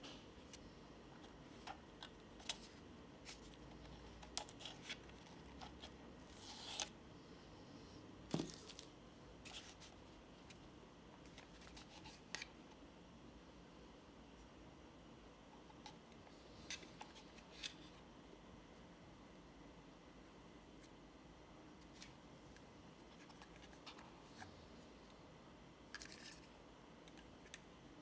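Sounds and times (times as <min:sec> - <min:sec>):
packaging rustling: 0:08.3 - 0:09.9.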